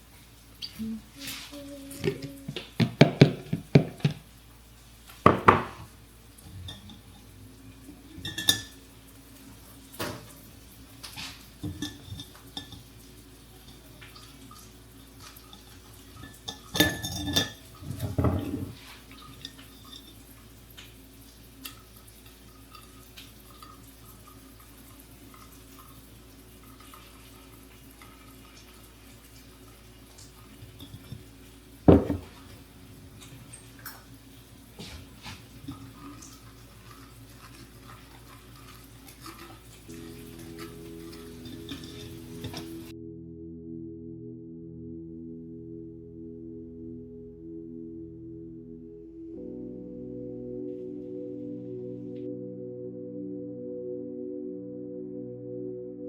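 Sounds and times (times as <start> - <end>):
faint steady hum: 0.0 - 56.0
dishes and cutlery clinking: 6.6 - 7.2, 8.1 - 8.8, 11.2 - 12.9, 15.4 - 20.2, 31.9 - 32.4, 39.1 - 42.9.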